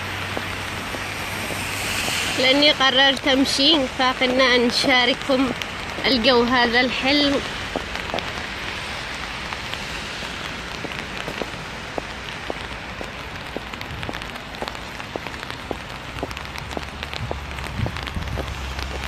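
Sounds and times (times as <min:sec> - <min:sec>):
raindrop hits ticking: 0:00.0 - 0:19.0
steady rain falling: 0:00.0 - 0:19.0.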